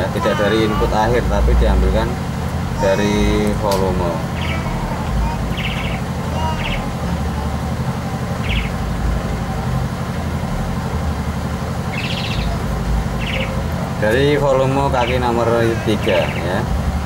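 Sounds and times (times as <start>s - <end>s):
low mechanical hum: 0.0s - 17.0s
small bird chirping: 2.8s - 7.6s, 8.2s - 9.0s, 11.8s - 13.8s.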